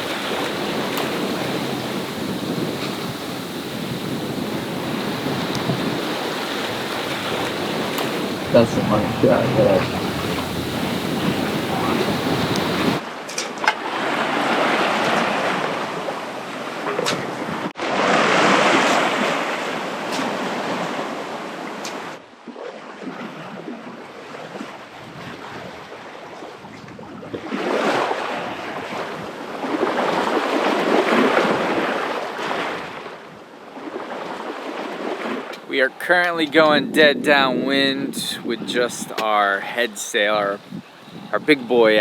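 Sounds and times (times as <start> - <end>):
wind on microphone: 0.0 - 13.0, 35.6 - 42.0
sea water rushing around boat: 0.0 - 42.0.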